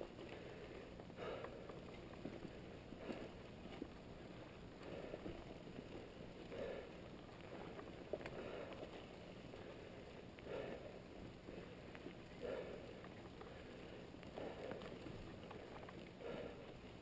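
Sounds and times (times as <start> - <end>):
mountain bike tyres and drivetrain: 0.0 - 17.0.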